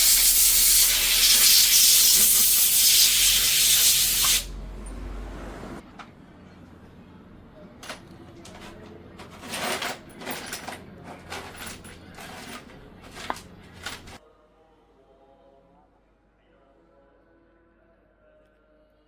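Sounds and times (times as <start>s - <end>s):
steady low hum: 3.7s - 14.2s
metal tools clinking and clanking: 7.8s - 14.2s.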